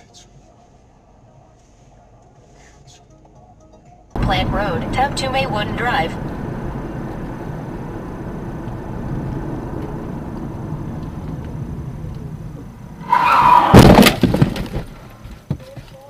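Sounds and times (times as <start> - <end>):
car road and engine noise: 0.0 - 16.0
car crash impacts: 5.9 - 16.0
tyre squeal: 13.0 - 14.2.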